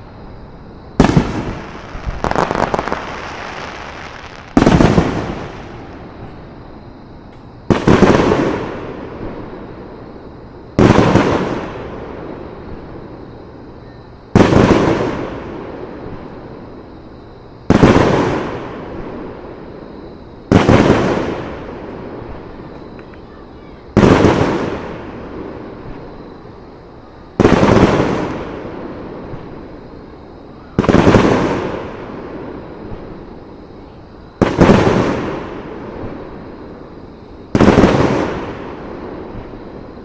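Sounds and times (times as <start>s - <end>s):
firework booms with echo: 1.0s - 6.6s, 7.7s - 9.7s, 10.8s - 12.9s, 14.3s - 16.3s, 17.7s - 19.6s, 20.5s - 22.6s, 24.0s - 26.3s, 27.4s - 29.8s, 30.7s - 33.2s, 34.4s - 36.5s, 37.5s - 40.0s.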